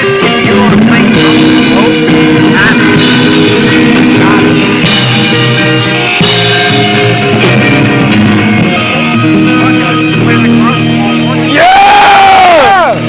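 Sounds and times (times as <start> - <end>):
rock band playing loud: 0.0 - 13.0.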